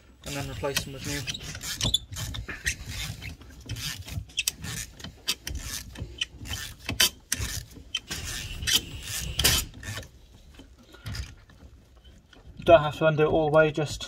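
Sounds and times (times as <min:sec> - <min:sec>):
ratchet clicking: 0:02.9 - 0:10.1.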